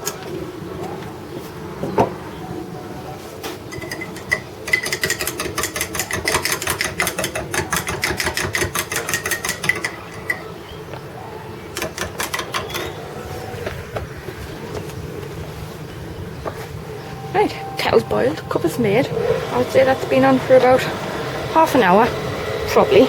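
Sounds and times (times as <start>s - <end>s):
faint high tone: 16.9s - 21.0s.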